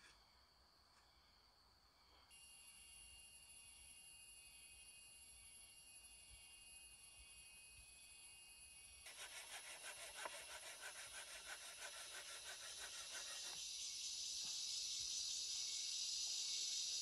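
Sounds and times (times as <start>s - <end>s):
high-pitched insect whines: 2.3s - 17.0s
insect rasping call: 9.0s - 17.0s.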